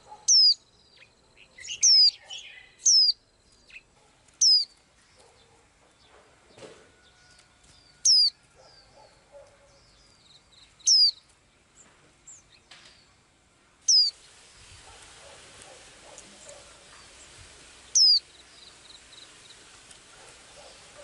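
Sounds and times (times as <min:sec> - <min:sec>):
songbird whistled call: 0:00.3 - 0:03.8, 0:04.4 - 0:04.7, 0:08.0 - 0:08.9, 0:10.8 - 0:11.2, 0:13.9 - 0:14.2, 0:17.9 - 0:18.7.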